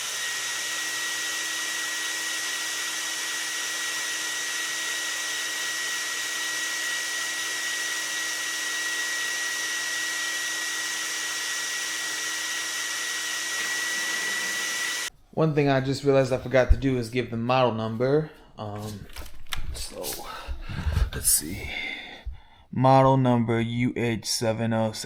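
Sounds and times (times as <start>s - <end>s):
vacuum cleaner running: 0.0s - 15.1s.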